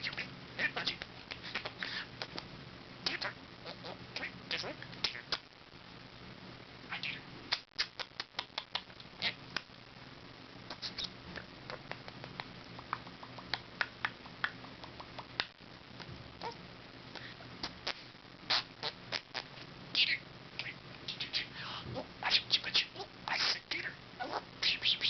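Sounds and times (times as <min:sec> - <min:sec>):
budgie clicks and chirps: 0:07.5 - 0:09.7, 0:10.7 - 0:16.1.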